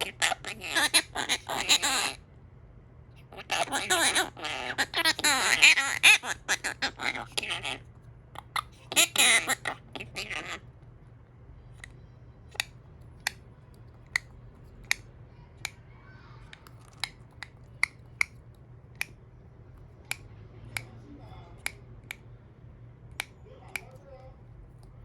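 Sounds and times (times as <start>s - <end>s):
parrot clicking: 0.0s - 2.2s, 3.2s - 10.6s, 11.8s - 15.8s, 16.5s - 22.3s, 23.1s - 24.1s
parrot mumbling: 0.0s - 2.2s, 3.2s - 10.7s.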